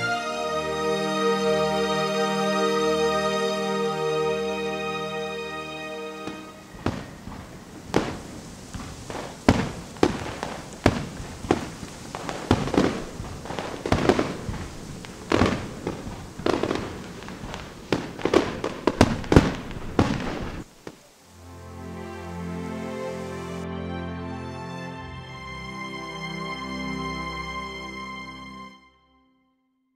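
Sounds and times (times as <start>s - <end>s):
fireworks bangs: 0.0s - 21.4s.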